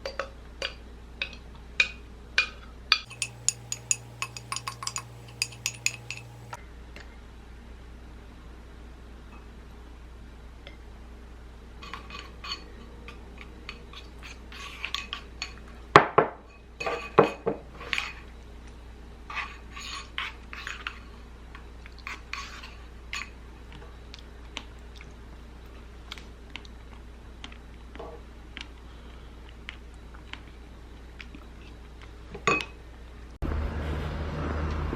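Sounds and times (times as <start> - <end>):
dishes and cutlery clinking: 2.4 - 6.6, 11.8 - 18.3, 32.3 - 32.8.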